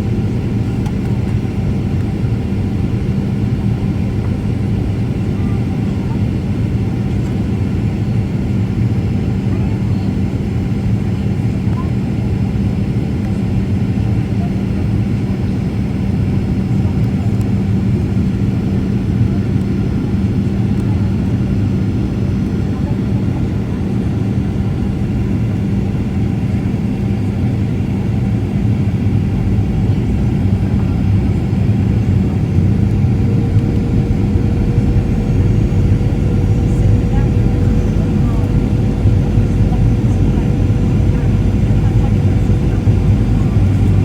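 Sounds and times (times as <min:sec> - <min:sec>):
airliner cabin engine rumble: 0:00.0 - 0:44.0.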